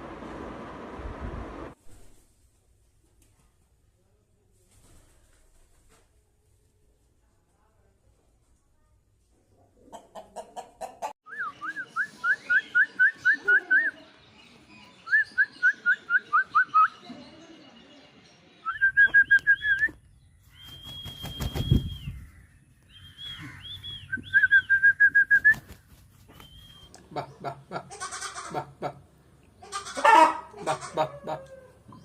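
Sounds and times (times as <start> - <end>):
low rumble: 0.0 - 1.8
bird whistling calls: 18.6 - 27.0.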